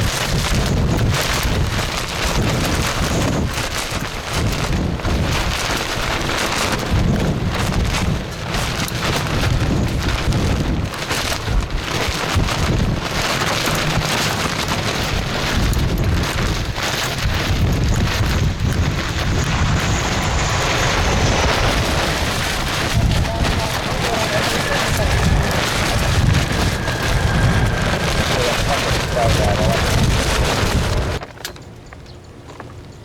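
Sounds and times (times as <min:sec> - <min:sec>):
gusty wind buffeting microphone: 0:00.0 - 0:31.9
faint high whine: 0:18.0 - 0:31.2.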